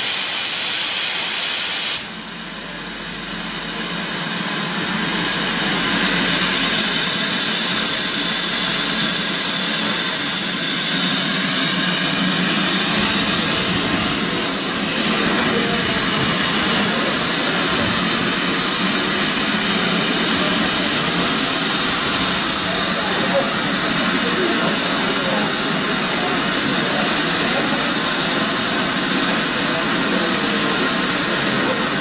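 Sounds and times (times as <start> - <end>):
locomotive hissing rush: 0.0 - 32.0
locomotive engine running: 2.6 - 32.0.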